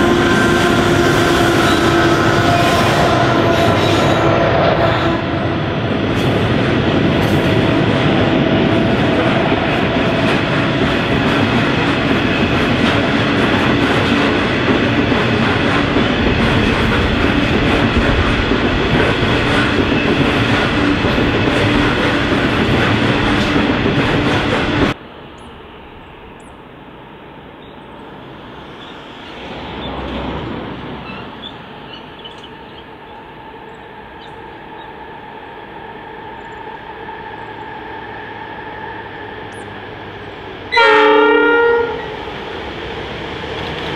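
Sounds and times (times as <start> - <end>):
distant train approaching: 0.0 - 43.9
freight train rumbling past: 0.0 - 43.9.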